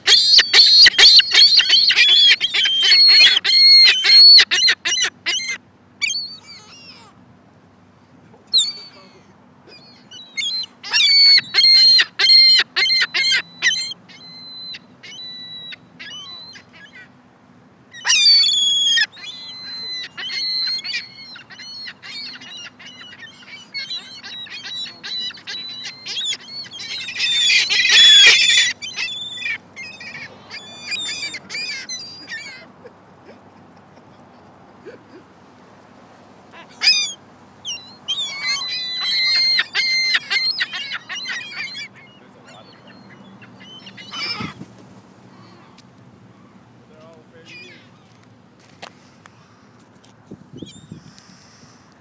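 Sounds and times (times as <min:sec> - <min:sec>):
birds calling in sharp bursts: 0:00.0 - 0:07.0, 0:17.9 - 0:32.7, 0:36.6 - 0:46.8.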